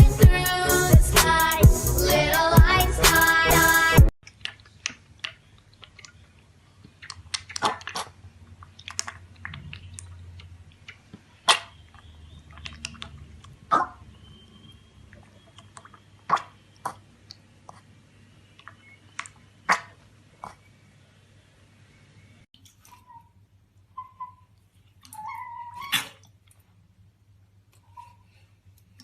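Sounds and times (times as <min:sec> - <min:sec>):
chewing crunches: 0:04.2 - 0:13.9.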